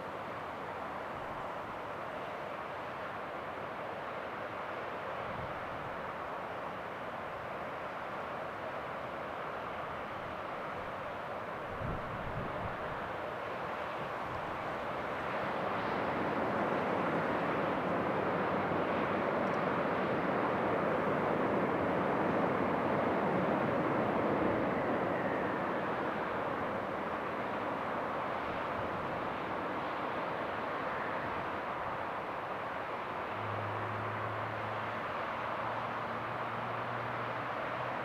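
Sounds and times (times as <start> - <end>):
jet airliner engines passing: 9.2 - 38.0.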